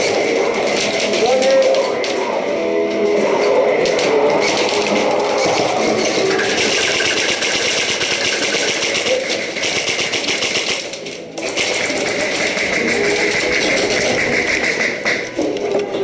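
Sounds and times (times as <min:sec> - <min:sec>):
airsoft guns firing rapidly: 0:04.4 - 0:15.2.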